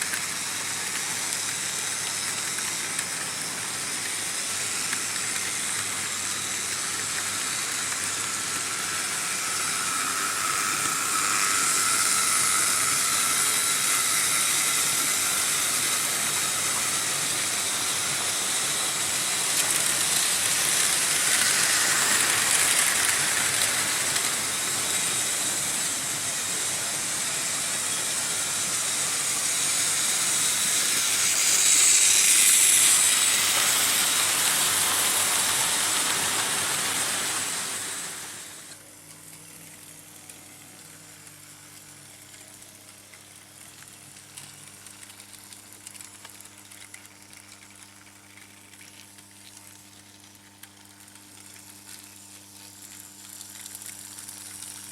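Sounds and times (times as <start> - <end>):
model trains rolling on track: 0.0 - 48.8.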